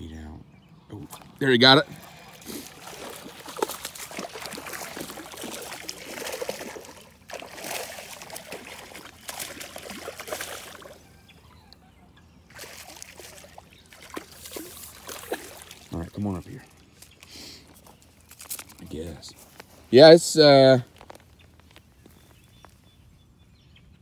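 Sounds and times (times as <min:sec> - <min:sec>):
water splashing and trickling: 0:00.9 - 0:11.2, 0:12.5 - 0:19.2.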